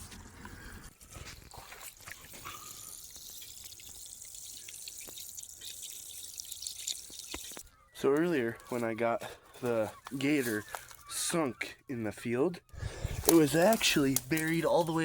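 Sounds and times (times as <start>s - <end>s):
water dripping and trickling: 0.9s - 8.8s, 13.1s - 15.0s.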